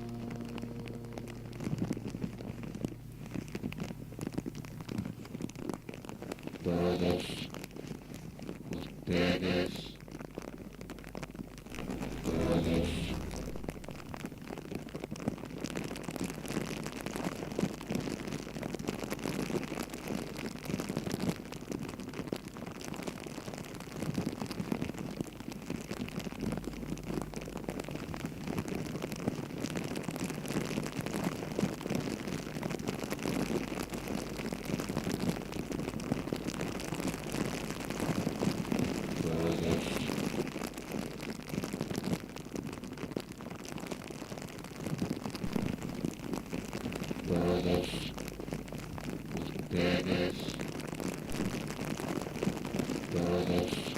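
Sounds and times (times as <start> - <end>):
brief low-pitched sound: 0.0 - 4.1, 11.7 - 14.2
campfire crackling: 0.0 - 53.9.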